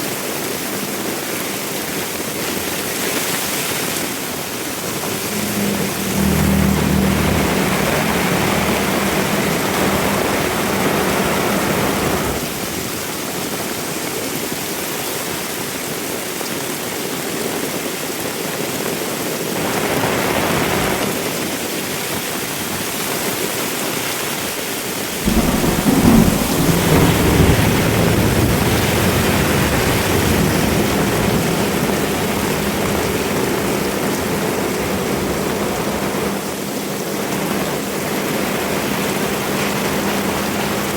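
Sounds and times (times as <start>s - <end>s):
heavy rain falling: 0.0s - 23.4s, 24.5s - 40.9s
deep low rumble: 4.5s - 13.0s, 25.2s - 35.6s.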